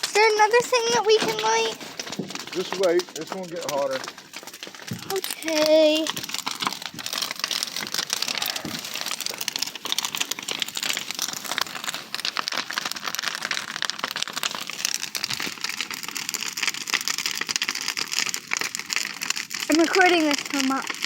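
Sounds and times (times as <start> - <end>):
bonfire crackling and popping: 0.0 - 21.0.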